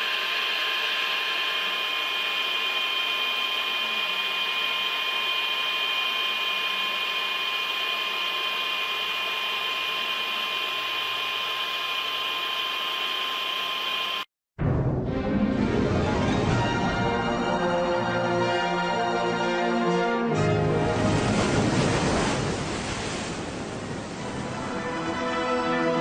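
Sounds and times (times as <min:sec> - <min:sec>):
high-pitched whine tones: 0:00.0 - 0:14.3
machine running: 0:00.0 - 0:14.3.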